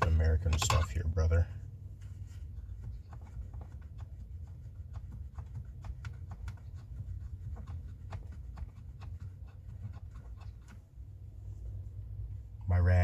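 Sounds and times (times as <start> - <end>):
hand tools clicking and scraping: 0.0 - 1.0
low steady rumble: 0.0 - 13.0.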